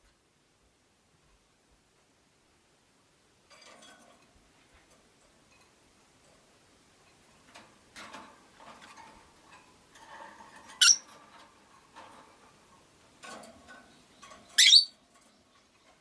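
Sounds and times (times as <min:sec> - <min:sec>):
birds chattering and clicking: 0:07.4 - 0:16.0
sharp high bird chirps: 0:10.8 - 0:11.0, 0:14.6 - 0:14.9.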